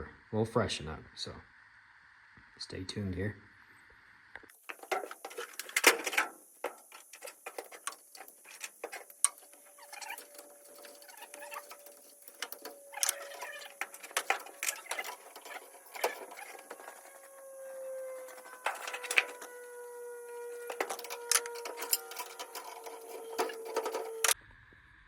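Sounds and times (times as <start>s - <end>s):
faint steady tone: 0.0s - 25.0s
hand tools clinking on metal: 4.7s - 24.4s.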